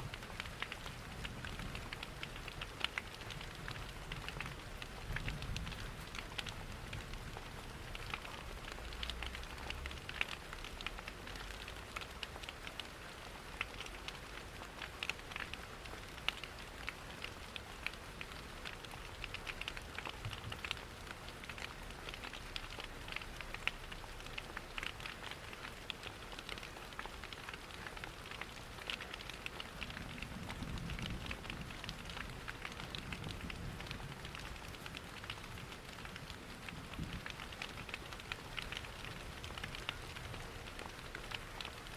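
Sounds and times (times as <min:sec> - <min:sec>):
rain pattering: 0:00.0 - 0:41.9
wood fire crackling: 0:00.1 - 0:07.0, 0:07.8 - 0:41.9.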